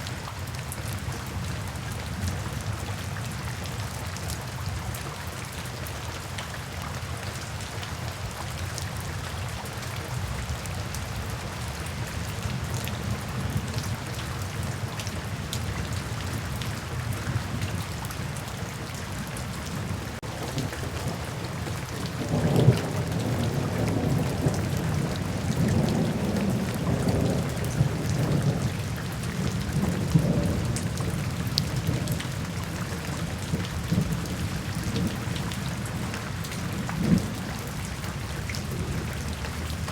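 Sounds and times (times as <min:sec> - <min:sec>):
steady rain falling: 0:00.0 - 0:39.9
thunder rumbling: 0:19.9 - 0:32.8.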